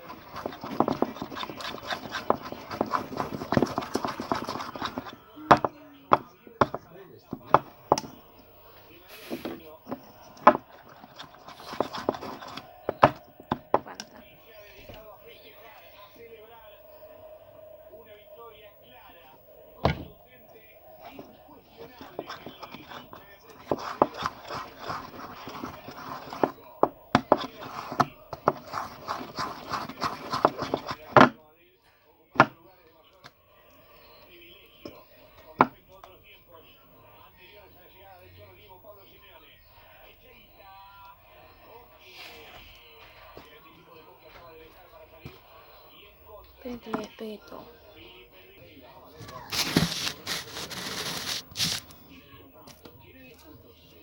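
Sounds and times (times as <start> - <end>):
slime squishing by hand: 0.0 - 5.7, 10.4 - 13.9, 49.4 - 52.0.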